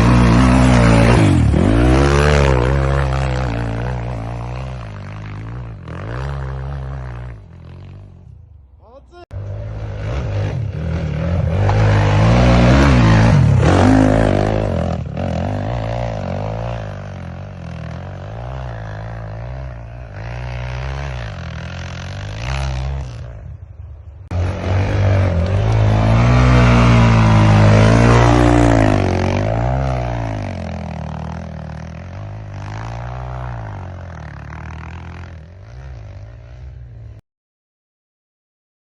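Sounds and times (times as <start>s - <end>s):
vehicle engine revving: 0.0s - 7.3s, 9.4s - 16.8s, 24.3s - 36.1s.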